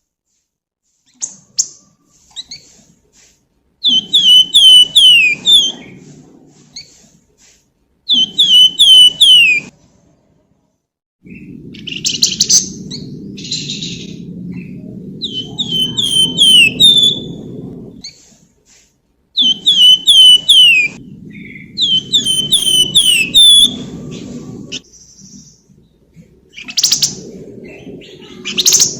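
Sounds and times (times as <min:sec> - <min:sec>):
songbird whistled notes: 0:03.8 - 0:06.0, 0:08.1 - 0:09.7, 0:15.2 - 0:17.5, 0:19.4 - 0:25.5
low rumble: 0:11.2 - 0:18.1, 0:20.5 - 0:28.9.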